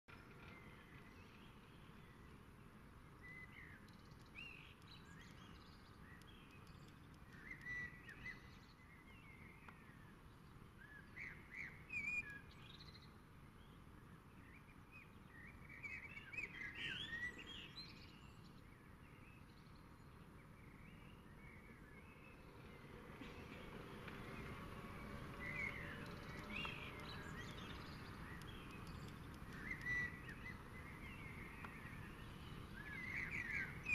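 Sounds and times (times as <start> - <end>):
birds chirping and singing: 14.4 - 33.9.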